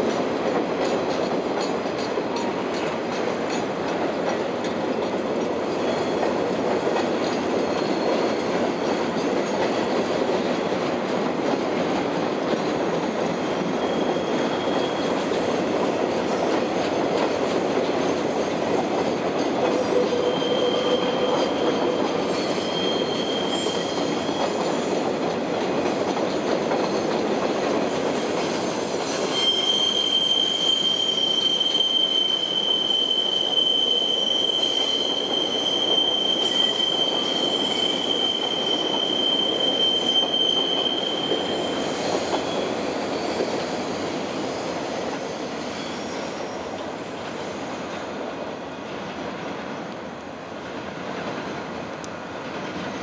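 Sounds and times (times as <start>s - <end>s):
train wheels on rail: 0.0s - 53.0s
high wheel squeal: 7.2s - 9.1s, 13.4s - 15.7s, 19.7s - 25.0s, 28.2s - 46.7s.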